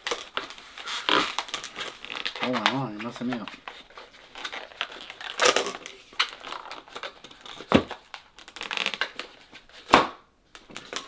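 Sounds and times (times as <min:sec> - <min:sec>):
balloon rubber squeaking: 0:00.0 - 0:10.0
balloon snapping: 0:09.8 - 0:11.0.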